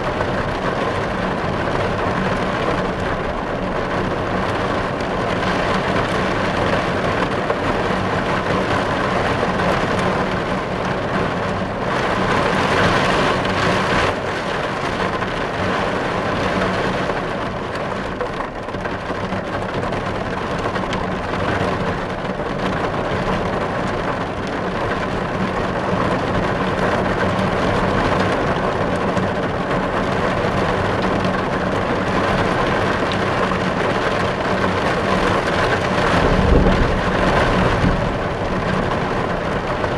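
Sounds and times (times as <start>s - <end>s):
heavy rain on car roof: 0.0s - 39.9s.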